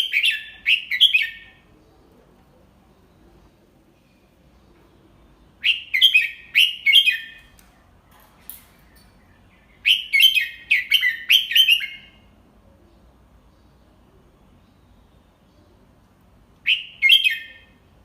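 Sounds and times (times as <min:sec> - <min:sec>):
bulbul chirped whistles: 0:09.8 - 0:12.2, 0:16.6 - 0:17.7.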